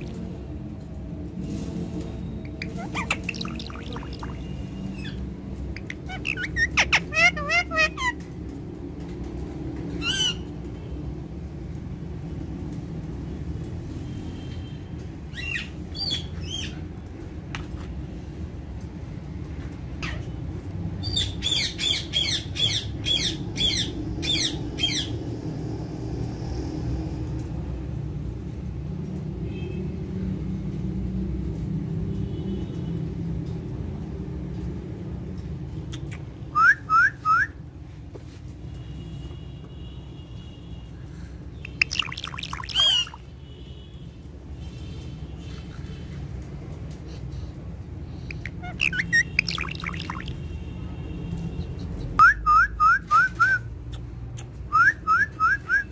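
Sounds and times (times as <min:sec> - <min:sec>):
parakeet squawking: 0:02.6 - 0:08.2, 0:20.0 - 0:20.3, 0:41.6 - 0:43.2, 0:48.3 - 0:50.4
parrot whistles: 0:36.5 - 0:37.6, 0:41.7 - 0:43.2, 0:48.3 - 0:50.3, 0:52.2 - 0:53.7, 0:54.7 - 0:55.9.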